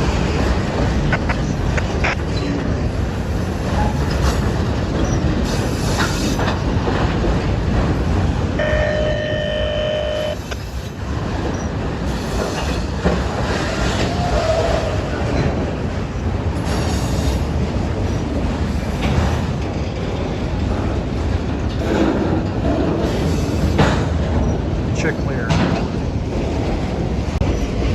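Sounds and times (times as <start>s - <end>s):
freight train cars rolling past: 0.0s - 27.9s
wheels clacking over rails: 0.0s - 27.9s.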